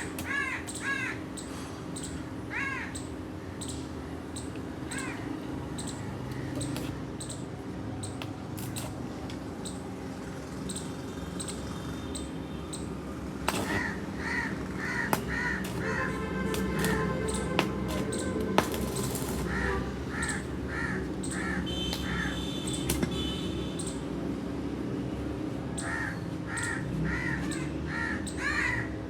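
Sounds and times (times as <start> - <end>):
crows cawing: 0.0 - 1.7, 2.4 - 3.5, 4.9 - 5.4, 13.5 - 22.4, 25.8 - 29.0
sharp clicks: 5.8 - 9.8, 15.1 - 19.6.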